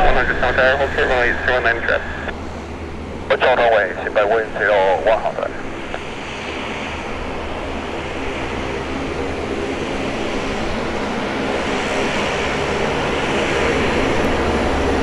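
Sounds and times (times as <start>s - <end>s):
aircraft engines droning: 0.0s - 15.0s.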